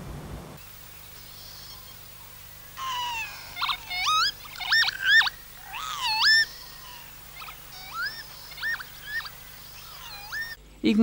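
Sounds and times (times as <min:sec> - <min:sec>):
lapwing wheezy whistled song: 0:02.8 - 0:10.6.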